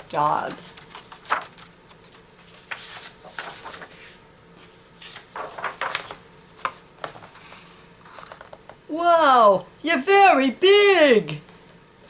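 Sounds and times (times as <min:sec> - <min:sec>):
book pages rustling: 0:00.0 - 0:08.6.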